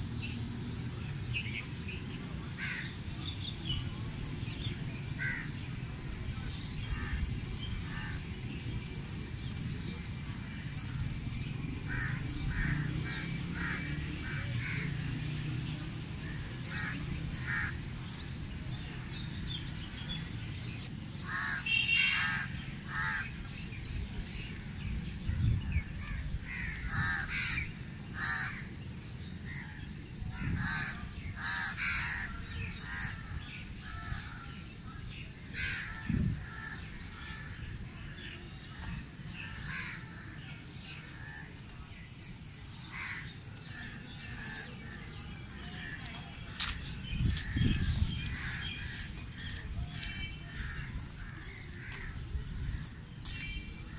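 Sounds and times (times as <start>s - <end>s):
birds calling: 16.2s - 23.8s, 25.3s - 41.6s, 42.3s - 53.9s.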